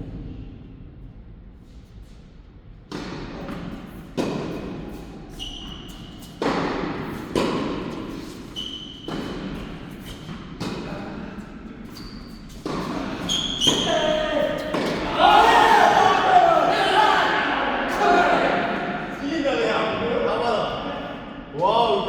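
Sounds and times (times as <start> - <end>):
shoe squeaks: 5.3 - 6.4, 8.1 - 10.3, 11.8 - 15.0
tennis ball hits and bounces: 6.4 - 8.1.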